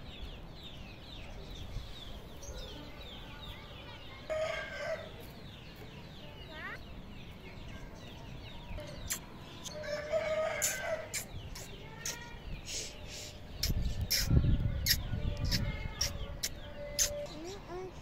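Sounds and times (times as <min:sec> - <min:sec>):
birds clucking and chirping: 0:00.0 - 0:18.0.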